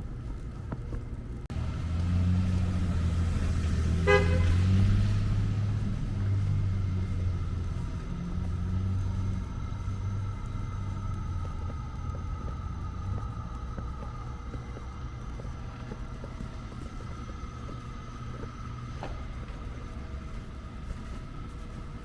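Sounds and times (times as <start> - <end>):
car engine running: 0.0 - 22.0
car horn toot: 3.8 - 5.5.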